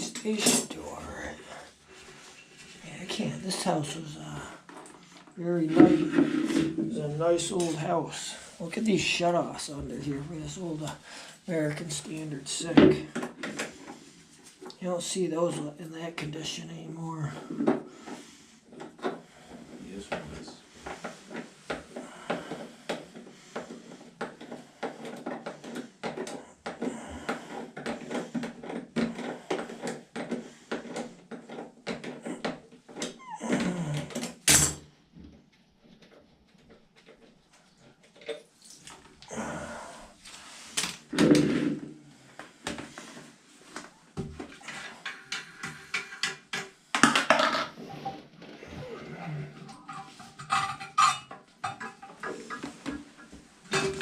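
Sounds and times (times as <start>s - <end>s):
hand tools knocking and clattering: 49.7s - 54.0s.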